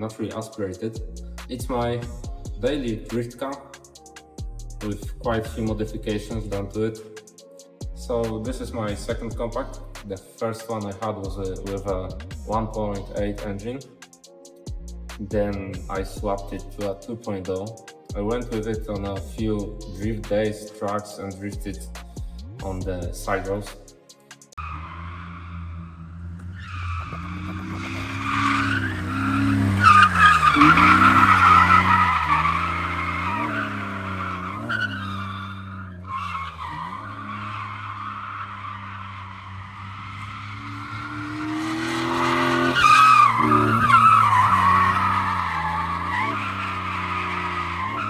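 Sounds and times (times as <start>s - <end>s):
car engine revving: 24.6s - 48.0s
tyres squealing: 26.4s - 48.0s.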